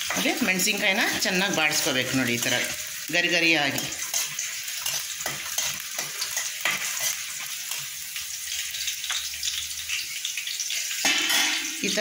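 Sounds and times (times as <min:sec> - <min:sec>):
chillies sizzling in hot oil: 0:00.0 - 0:12.0
spatula scraping and knocking pan: 0:03.7 - 0:08.0, 0:11.0 - 0:11.8.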